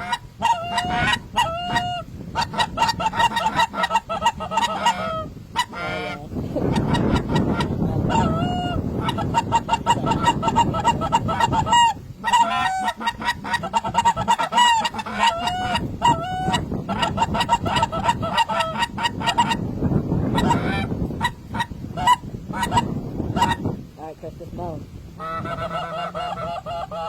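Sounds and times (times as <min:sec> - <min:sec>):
flock of geese honking: 0:00.0 - 0:23.8, 0:25.2 - 0:27.0.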